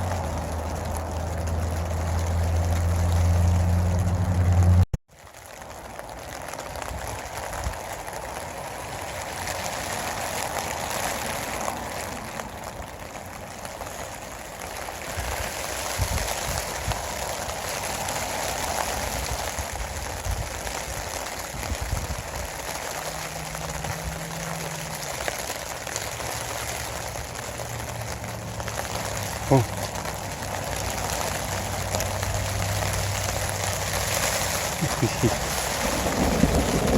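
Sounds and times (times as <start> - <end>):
steady rain falling: 0.0 - 36.9.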